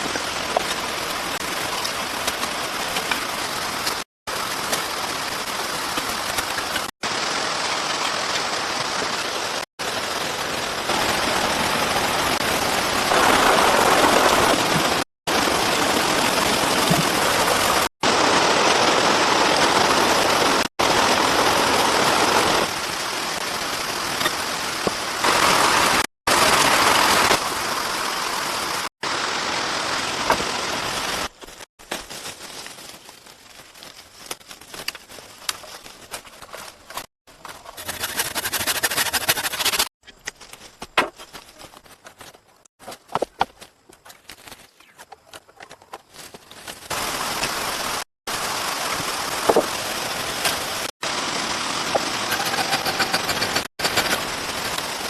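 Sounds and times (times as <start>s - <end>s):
heavy rain pouring: 0.0s - 31.5s, 46.9s - 55.0s
patter of raindrops: 0.0s - 37.9s, 40.0s - 55.0s.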